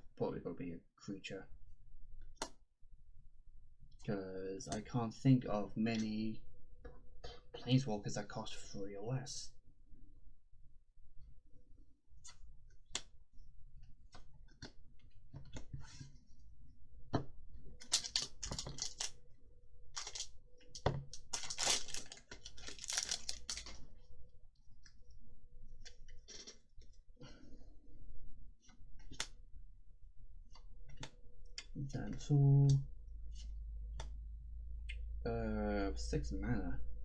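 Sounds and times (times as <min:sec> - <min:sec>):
cards rustling: 0:17.8 - 0:19.2, 0:20.0 - 0:23.8
cards clicking and sliding: 0:17.9 - 0:19.2, 0:20.0 - 0:20.3, 0:21.2 - 0:23.8.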